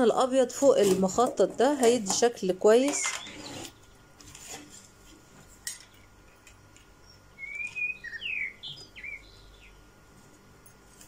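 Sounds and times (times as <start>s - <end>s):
bird chirping: 3.0s - 4.0s, 7.0s - 9.8s.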